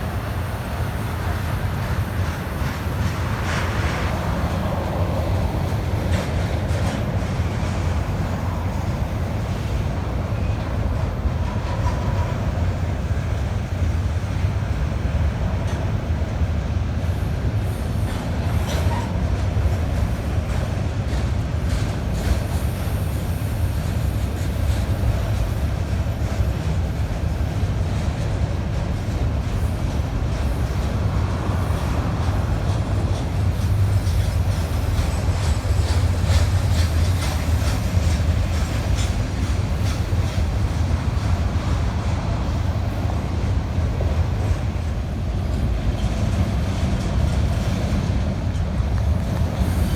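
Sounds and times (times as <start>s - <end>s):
freight train rumbling: 0.0s - 49.9s
train wheel clicks: 17.5s - 49.9s.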